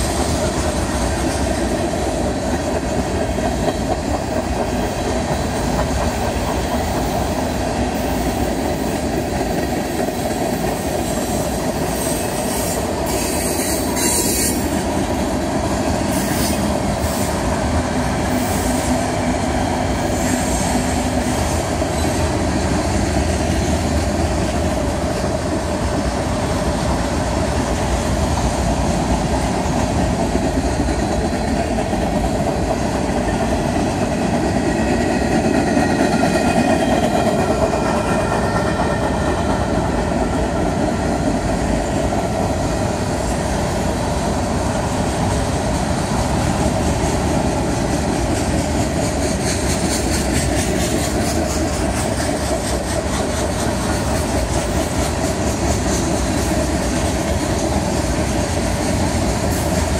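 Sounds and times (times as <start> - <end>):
freight train rolling past: 0.0 - 59.9
steel wheels rattling on rails: 0.0 - 59.9.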